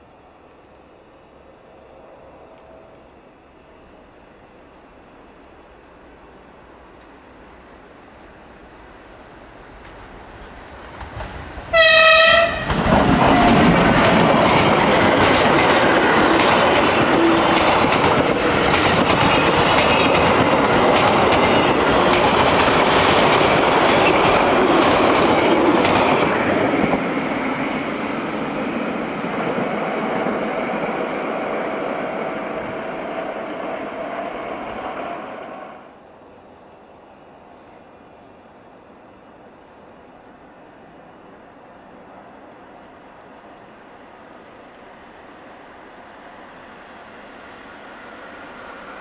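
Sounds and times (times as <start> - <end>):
train wheels clacking: 9.8 - 28.0
train horn blast: 11.7 - 12.7.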